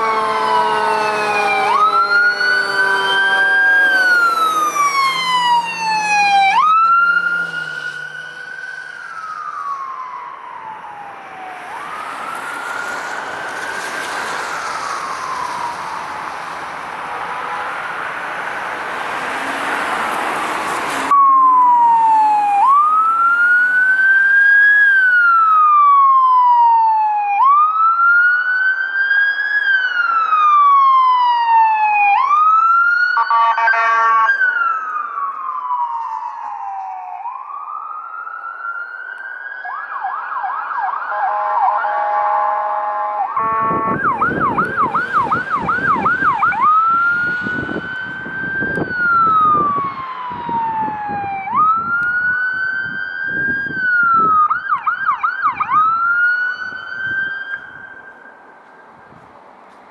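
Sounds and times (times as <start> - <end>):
road noise: 0.0 - 26.9, 27.5 - 59.9
siren wailing: 0.0 - 59.2
horn blast: 17.0 - 19.7, 33.4 - 34.2, 41.1 - 45.4.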